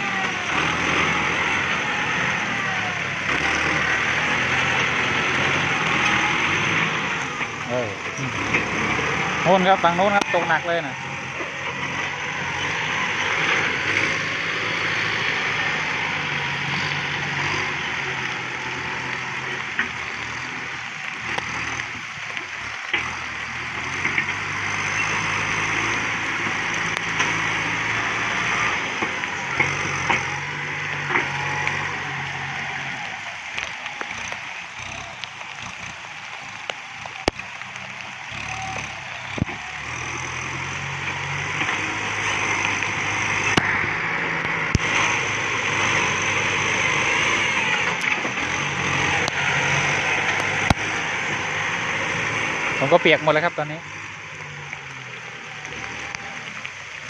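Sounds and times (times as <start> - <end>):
tractor diesel engine: 0.0 - 57.0
sharp cracks: 25.9 - 45.6.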